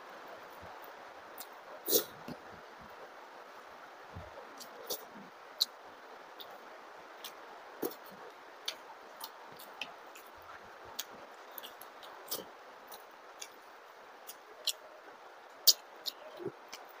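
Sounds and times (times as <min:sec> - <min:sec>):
faint steady hiss: 0:00.0 - 0:17.0
man chewing and lip smacking: 0:06.4 - 0:06.6, 0:07.2 - 0:10.3, 0:10.9 - 0:13.6, 0:15.6 - 0:17.0.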